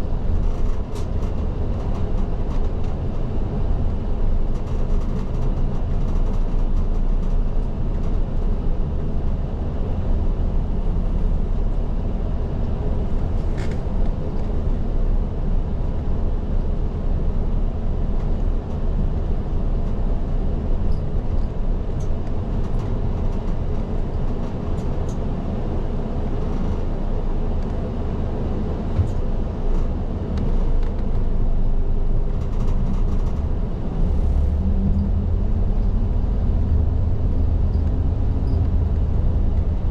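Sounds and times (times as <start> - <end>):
bus diesel engine rumble: 0.0 - 39.9
road noise: 0.0 - 39.9
faint clicks and rattles: 3.8 - 8.5, 32.2 - 33.6.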